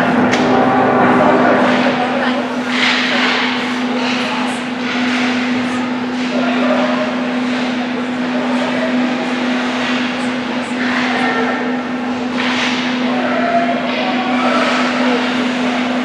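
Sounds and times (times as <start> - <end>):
steady rink hum: 0.0 - 3.4.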